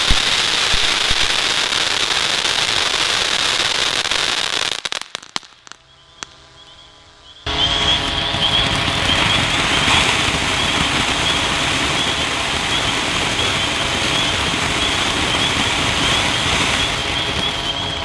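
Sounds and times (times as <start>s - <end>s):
drone propellers whining: 5.8s - 18.0s.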